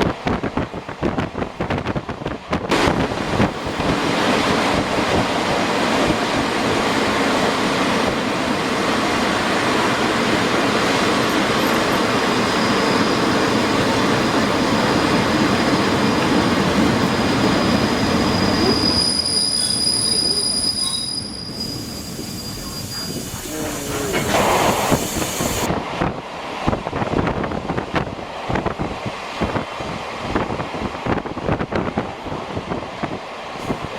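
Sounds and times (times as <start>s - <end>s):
train wheels rumbling on rail: 0.0s - 33.9s
high wheel squeal: 11.2s - 13.5s, 17.4s - 25.6s.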